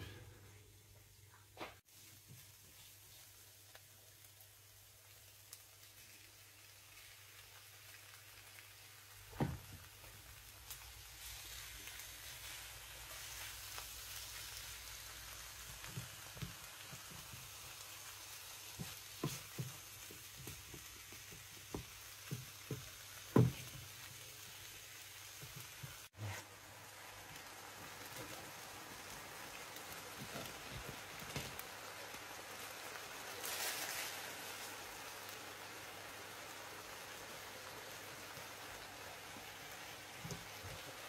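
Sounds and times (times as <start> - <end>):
food sizzling in a pan: 0.0 - 41.0
utensil knocking on pan: 18.8 - 23.8.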